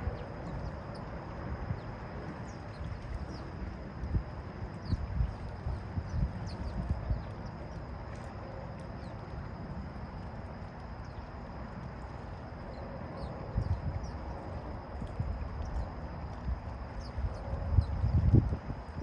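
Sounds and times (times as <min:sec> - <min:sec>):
steady low rumble: 0:00.0 - 0:19.0
small birds chirping: 0:04.7 - 0:07.8.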